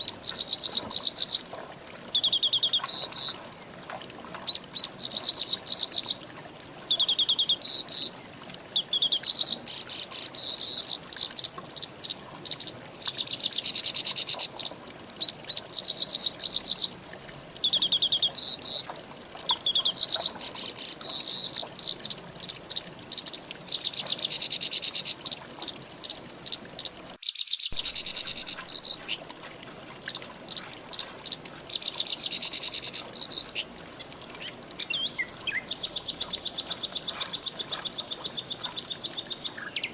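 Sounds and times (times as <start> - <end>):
songbirds trilling: 0.0 - 3.7, 4.4 - 39.9.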